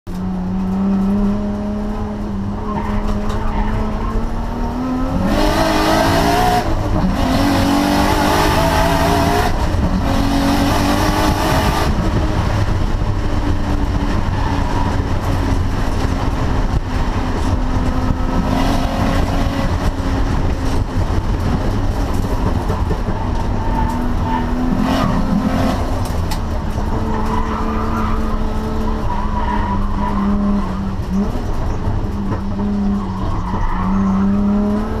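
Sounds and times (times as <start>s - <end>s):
race car engine revving: 0.1s - 35.0s.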